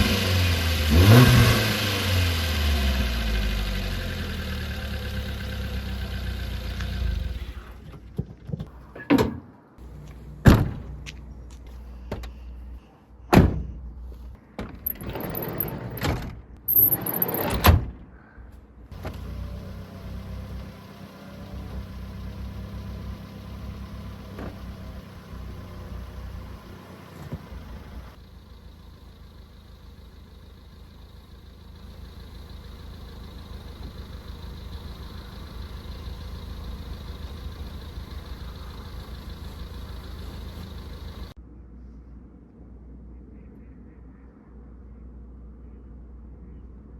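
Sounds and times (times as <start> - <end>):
car engine idling: 0.0 - 8.1, 18.9 - 41.4.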